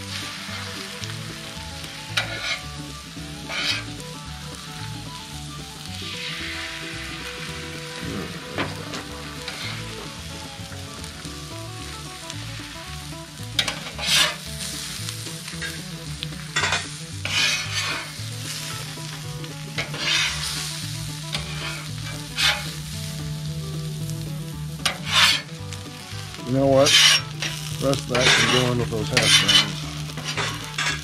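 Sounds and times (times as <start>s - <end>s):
spatula scraping pan: 0.0s - 4.1s, 6.1s - 23.2s, 24.7s - 31.0s
food sizzling in a pan: 0.0s - 31.0s.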